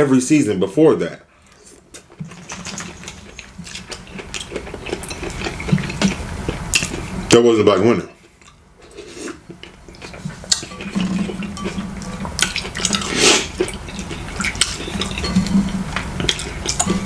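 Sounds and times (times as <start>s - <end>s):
wet mouth eating sounds: 1.5s - 7.3s, 8.2s - 17.0s
utensils clicking against dish: 16.2s - 17.0s.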